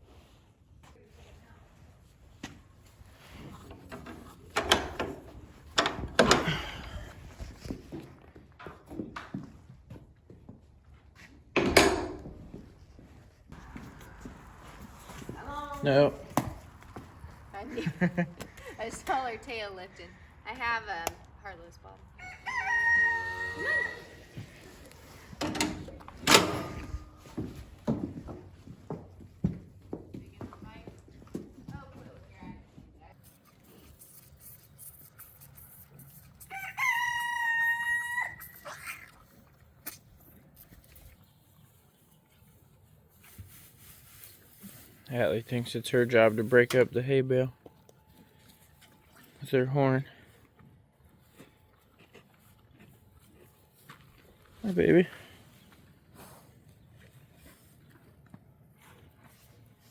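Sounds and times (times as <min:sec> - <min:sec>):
sharp knocks and clatters: 0:11.6 - 0:12.6
high-pitched animal call: 0:22.2 - 0:24.4.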